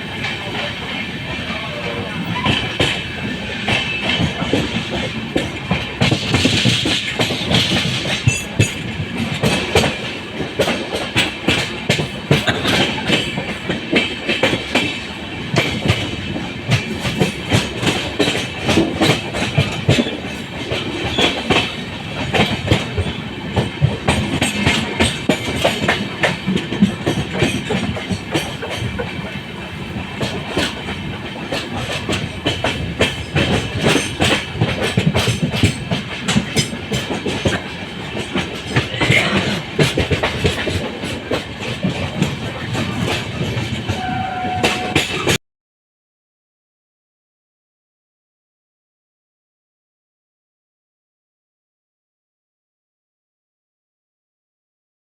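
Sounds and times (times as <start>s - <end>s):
train running rumble: 0.0s - 45.4s
train wheels clattering over joints: 0.0s - 45.4s.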